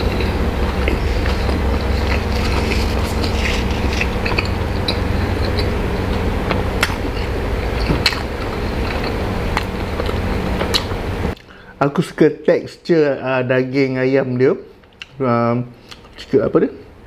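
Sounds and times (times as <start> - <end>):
person chewing: 0.0 - 11.5
steady low hum: 0.0 - 17.0
wet mouth smacks and clicks: 9.6 - 11.5.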